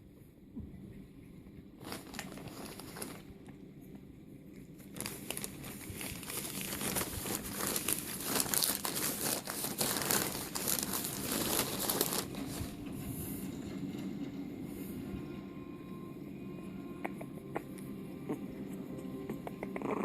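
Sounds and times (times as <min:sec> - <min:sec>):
paper or plastic crumpling: 0:01.8 - 0:03.3, 0:04.8 - 0:12.9.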